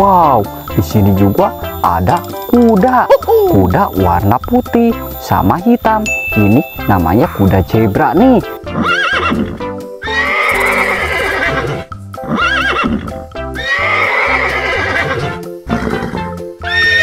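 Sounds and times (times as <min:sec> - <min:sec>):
cheerful background music: 0:00.0 - 0:17.0
horse neighing: 0:08.6 - 0:17.0.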